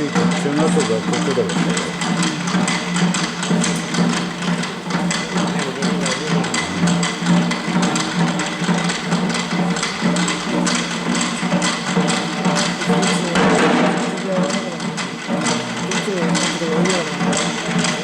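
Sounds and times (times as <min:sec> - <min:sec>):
taiko drums beating: 0:00.0 - 0:18.0
low drone: 0:05.7 - 0:09.0.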